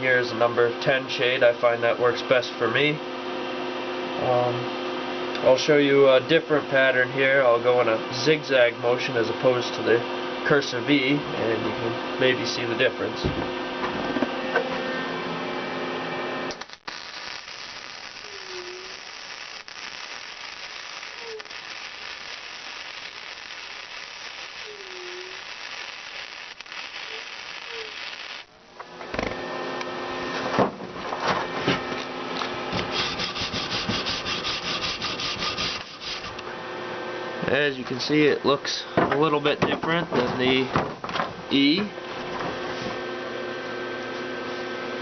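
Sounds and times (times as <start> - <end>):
welding arc hissing crackle: 16.5 - 28.8, 32.0 - 36.5.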